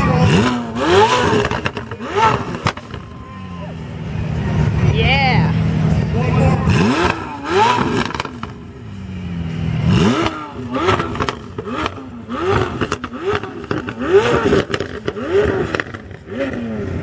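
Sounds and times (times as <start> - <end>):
car engine revving: 0.0 - 17.0
exhaust pops and crackles: 0.1 - 3.2, 10.2 - 16.6.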